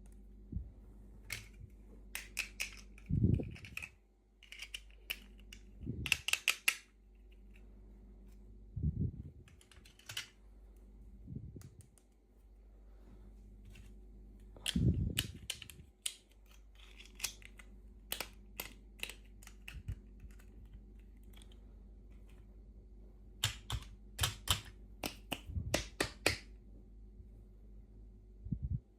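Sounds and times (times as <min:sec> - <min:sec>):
plastic toy pieces clicking: 0:01.3 - 0:06.9, 0:09.5 - 0:10.4, 0:14.6 - 0:21.6, 0:23.4 - 0:26.4.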